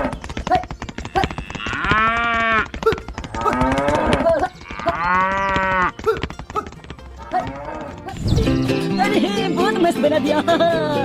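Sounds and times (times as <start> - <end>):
rapid clicking: 0.0 - 8.6
drawn-out animal calls: 0.0 - 9.5.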